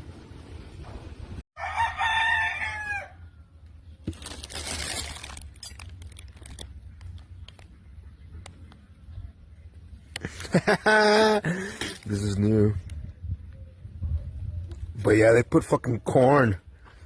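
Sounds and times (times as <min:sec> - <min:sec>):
rooster crowing: 0:01.6 - 0:03.6.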